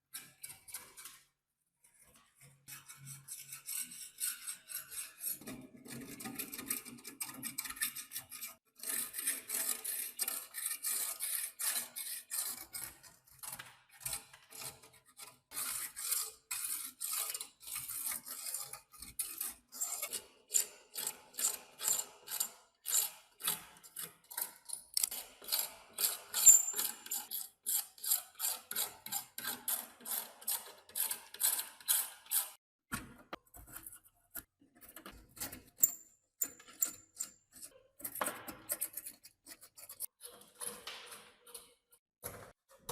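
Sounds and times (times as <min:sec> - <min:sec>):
hand tool rasping on rusty metal: 0:15.5 - 0:32.6.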